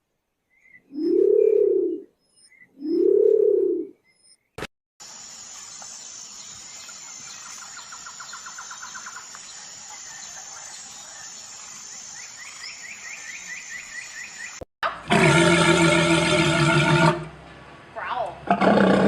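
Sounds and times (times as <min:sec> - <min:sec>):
bird chirping: 0:00.4 - 0:04.6, 0:05.6 - 0:14.6
background hiss: 0:05.0 - 0:14.6.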